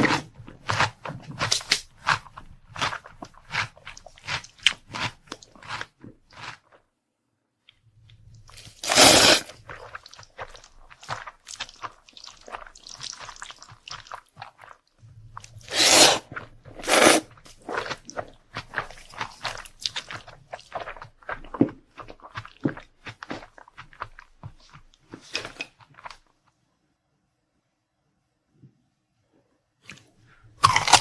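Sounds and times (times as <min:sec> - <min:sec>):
chewing crunchy food: 0:00.0 - 0:06.9, 0:07.7 - 0:26.4, 0:29.9 - 0:31.0
loud crunches: 0:08.6 - 0:09.9, 0:30.6 - 0:31.0.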